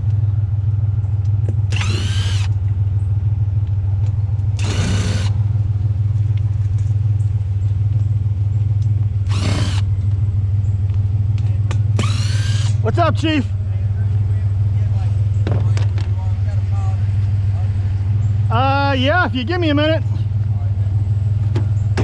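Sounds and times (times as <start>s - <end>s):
steady low hum: 0.0s - 22.0s
power tool bursts: 1.7s - 2.5s, 4.6s - 5.4s, 9.3s - 9.9s, 12.0s - 12.8s.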